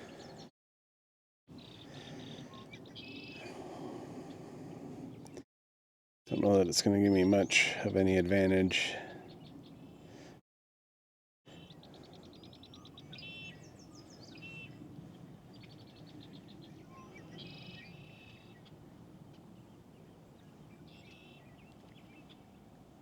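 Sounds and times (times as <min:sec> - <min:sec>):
songbirds singing faintly: 0:00.0 - 0:00.5, 0:01.5 - 0:05.5, 0:06.3 - 0:10.4, 0:11.5 - 0:23.0
outdoor hush: 0:01.5 - 0:05.4.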